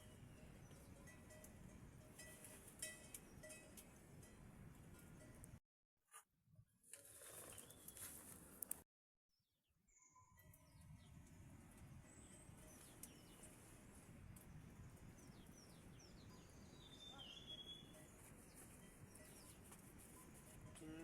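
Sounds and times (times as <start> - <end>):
faint birds chirping: 9.9 - 21.0.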